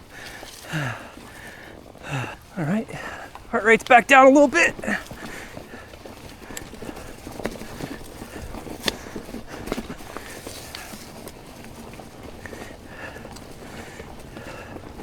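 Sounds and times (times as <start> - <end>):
tyres hissing on dirt: 0.0 - 15.0
bike frame knocks and rattles: 4.8 - 12.7.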